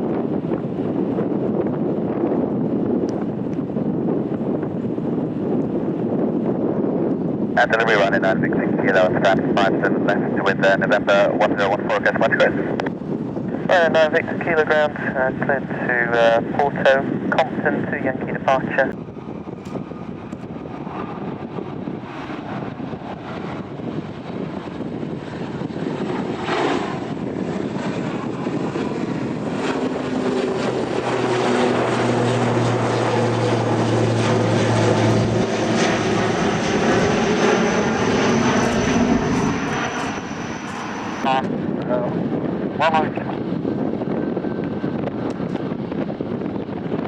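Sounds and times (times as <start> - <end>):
aircraft engines: 0.0 - 47.0
steady low drone: 18.2 - 45.8
thin high whine: 37.8 - 41.4.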